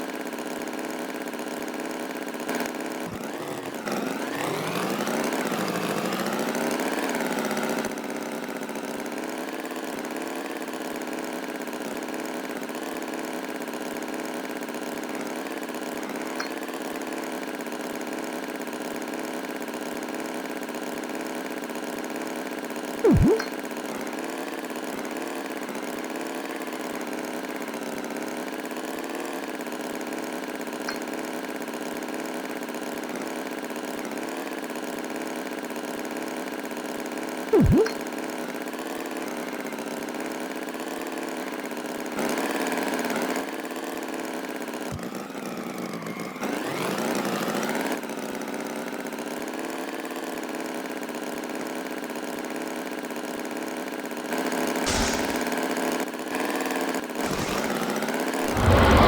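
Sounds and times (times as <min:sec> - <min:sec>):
loud swooping tone: 0:23.1 - 0:23.5, 0:58.4 - 0:59.0
motor drone: 0:54.9 - 0:55.5, 0:57.2 - 0:59.0
rising glide tone: 0:58.4 - 0:59.0.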